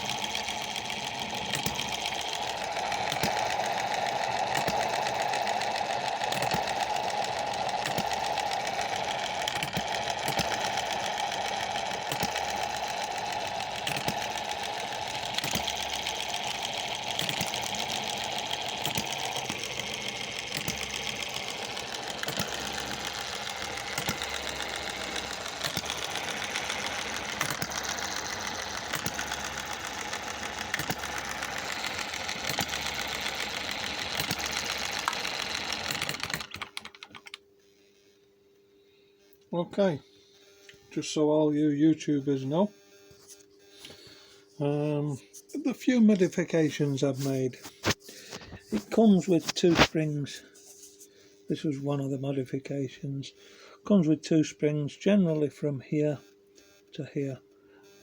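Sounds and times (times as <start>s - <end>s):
model engine clattering: 0.0s - 37.4s.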